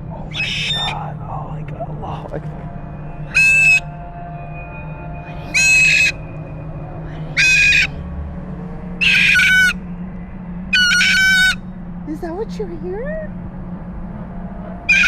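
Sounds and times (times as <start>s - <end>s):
cockatoo screaming: 0.3s - 1.0s, 3.3s - 3.8s, 5.3s - 6.2s, 7.1s - 8.0s, 9.0s - 9.8s, 10.8s - 11.6s.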